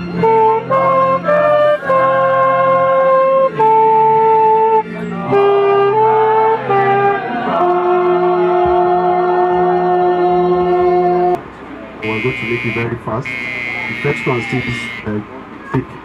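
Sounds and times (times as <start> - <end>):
wind instrument melody: 0.0 - 8.0, 12.0 - 15.2.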